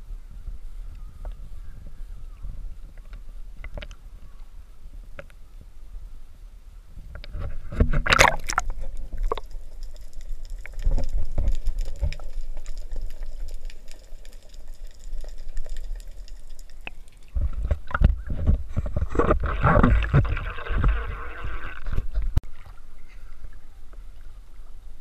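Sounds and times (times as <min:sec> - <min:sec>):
sea water splashing: 0:07.9 - 0:23.9.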